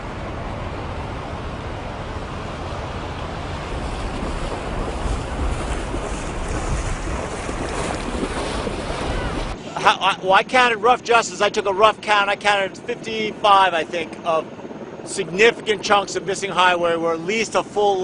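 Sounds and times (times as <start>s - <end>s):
floodwater rushing: 0.0s - 14.2s.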